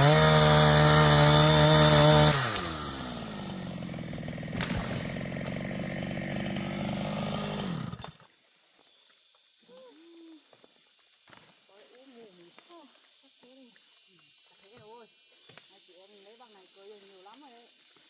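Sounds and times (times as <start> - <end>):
chainsaw running and idling: 0.0 - 8.3.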